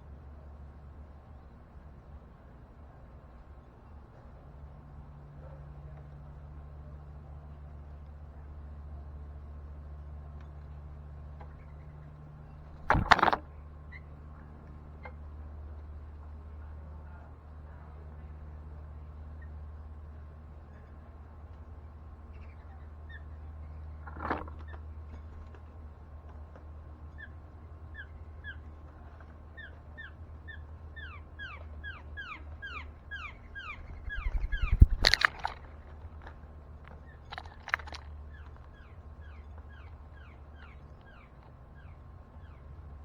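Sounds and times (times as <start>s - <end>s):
steady low hum: 0.0s - 43.0s
loud thump with rustling: 12.8s - 13.4s
sharp knocks: 12.8s - 13.4s
bird chirping: 30.0s - 35.7s.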